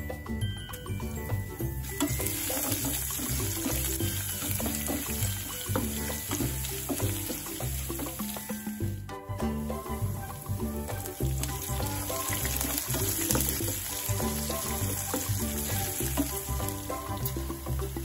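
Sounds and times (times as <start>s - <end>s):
upbeat background music: 0.0s - 18.0s
chillies sizzling in hot oil: 1.0s - 18.0s
wooden spatula stirring: 9.8s - 17.7s.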